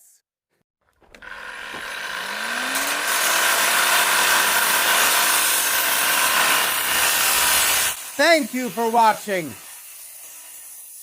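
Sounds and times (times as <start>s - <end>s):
angle grinder whine: 0.9s - 9.3s.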